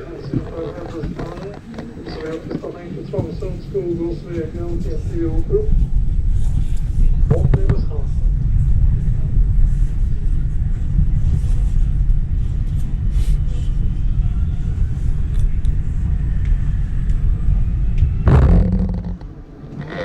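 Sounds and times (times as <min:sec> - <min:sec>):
train rumbling on rails: 0:00.0 - 0:20.0
short loud noise: 0:18.3 - 0:19.3.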